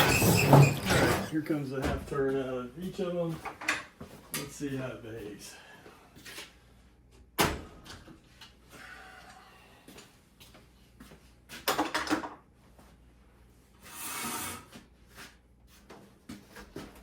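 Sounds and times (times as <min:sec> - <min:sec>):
garage door rolling rumble: 0:00.0 - 0:01.5
garage door clunks: 0:00.0 - 0:02.1.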